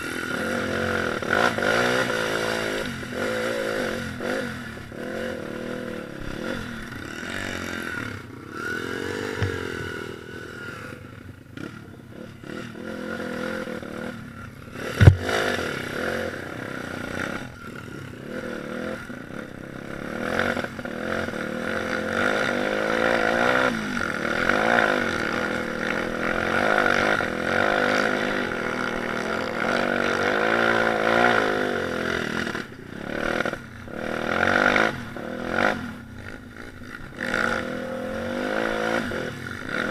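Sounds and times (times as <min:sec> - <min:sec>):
small motorcycle engine revving: 0:00.0 - 0:39.9
sharp knock: 0:15.0 - 0:15.3.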